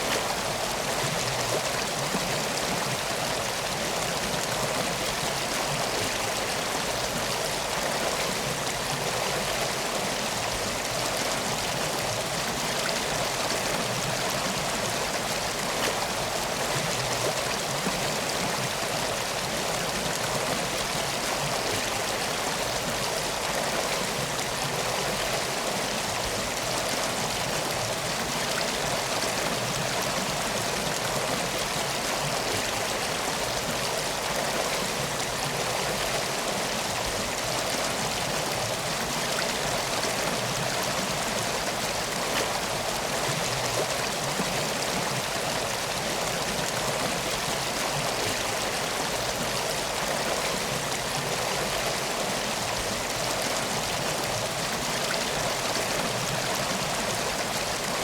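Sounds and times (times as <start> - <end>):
flowing water rushing: 0.0 - 58.0.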